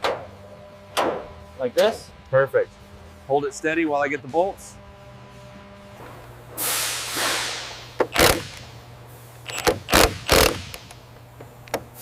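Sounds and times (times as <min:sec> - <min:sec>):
steady low hum: 0:00.0 - 0:12.0
pneumatic impact wrench bursts: 0:06.6 - 0:08.8, 0:09.4 - 0:10.9.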